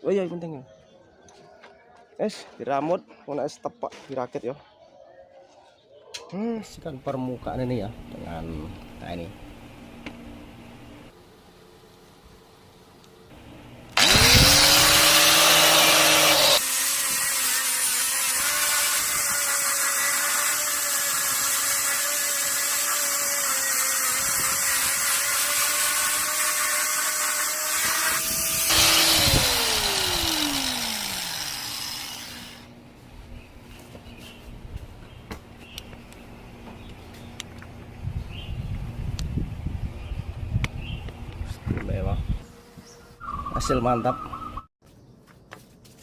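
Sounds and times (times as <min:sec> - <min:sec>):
power tool whining: 0:13.9 - 0:32.7.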